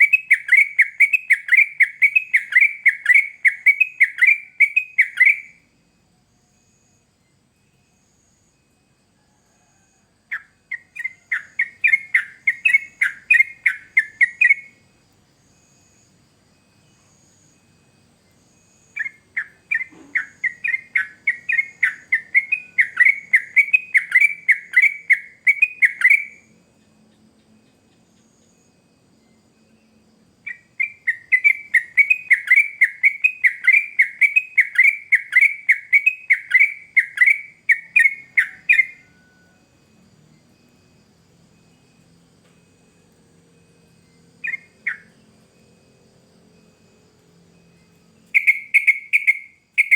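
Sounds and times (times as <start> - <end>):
bird singing falling notes: 19.0 - 26.3.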